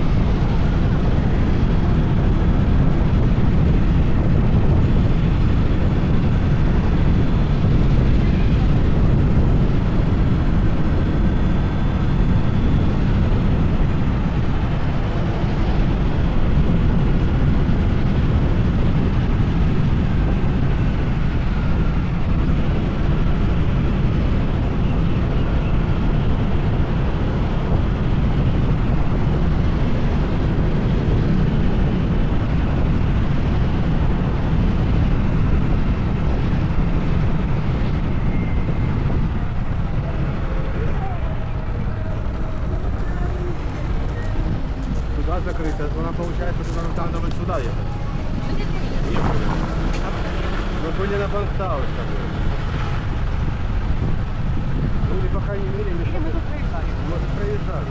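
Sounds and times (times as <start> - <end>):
rushing air: 35.3 - 55.2
scooter engine running: 41.8 - 54.1.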